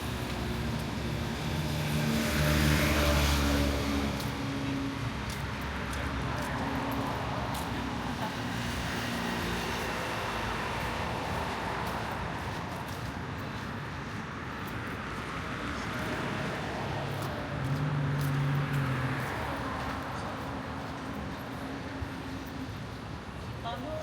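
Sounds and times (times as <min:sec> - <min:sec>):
street traffic: 0:00.0 - 0:24.0
vehicle passing close by: 0:01.3 - 0:05.0.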